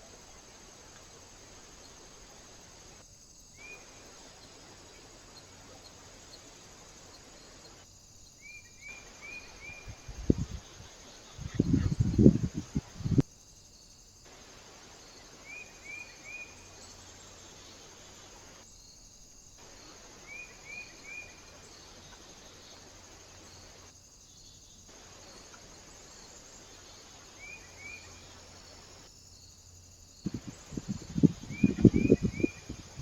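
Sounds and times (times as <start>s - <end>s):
faint outdoor hiss: 0.0s - 33.0s
small bird chirping: 3.5s - 13.2s, 30.3s - 33.0s.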